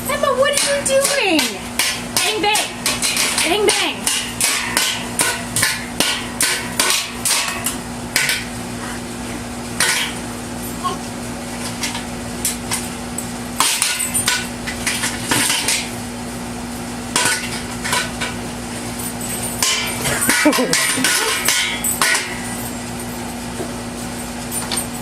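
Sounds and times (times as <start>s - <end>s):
steady low hum: 0.0s - 25.0s
hard objects banging: 0.1s - 8.5s, 9.8s - 10.2s, 13.6s - 16.0s, 19.4s - 22.7s.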